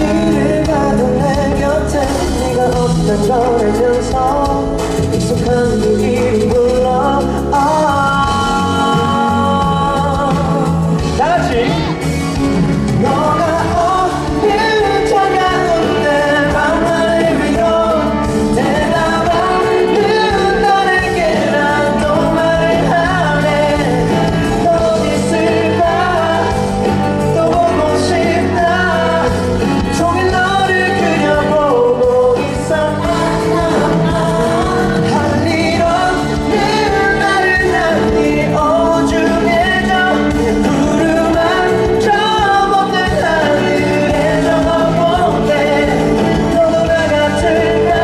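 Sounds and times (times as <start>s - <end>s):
backing band playing: 0.0s - 48.0s
man singing pop ballad: 0.0s - 48.0s.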